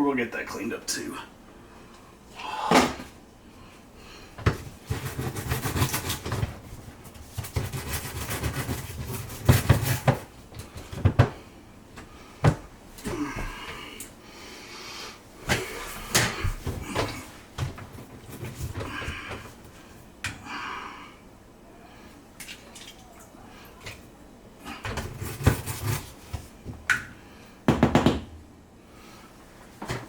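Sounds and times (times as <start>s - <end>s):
knocks and clatters in dishwasher: 27.7s - 28.4s.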